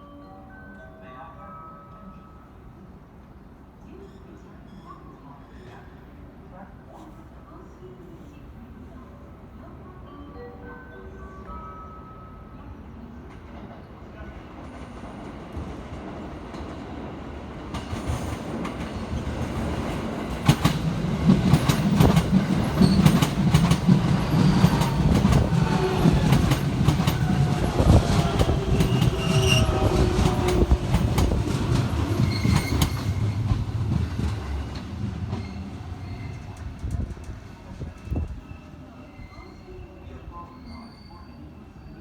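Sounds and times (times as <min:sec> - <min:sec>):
train rumbling past: 0:11.7 - 0:41.0
wheels clacking over rail joints: 0:17.7 - 0:38.4.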